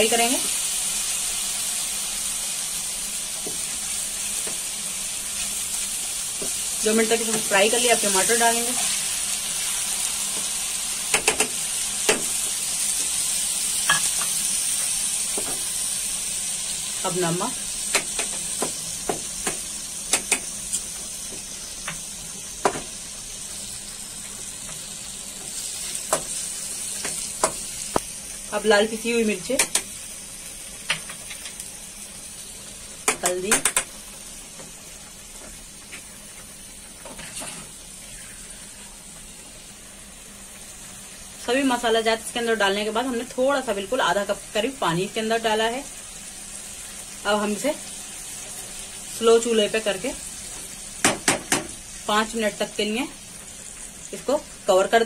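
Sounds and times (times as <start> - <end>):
tomatoes sizzling in hot oil: 0.0 - 55.0
sharp knocks against pan: 51.0 - 51.8.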